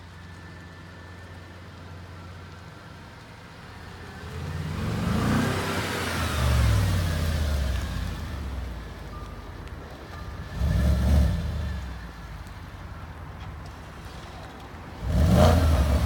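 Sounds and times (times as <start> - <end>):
car accelerating past: 4.2 - 8.7, 10.5 - 12.1, 13.8 - 16.0.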